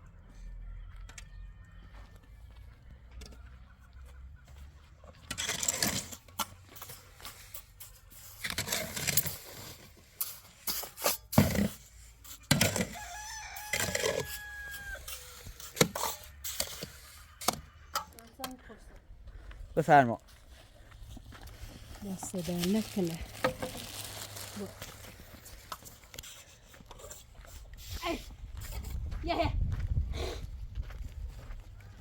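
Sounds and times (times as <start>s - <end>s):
rooster crowing: 0.2s - 2.6s, 12.7s - 15.4s
rustling: 21.2s - 26.6s.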